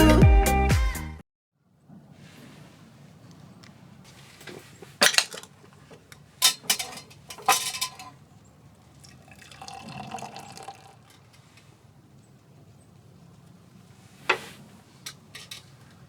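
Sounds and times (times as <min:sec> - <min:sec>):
glass clinking: 0:04.5 - 0:11.7, 0:15.1 - 0:15.7
liquid pouring: 0:05.0 - 0:11.6.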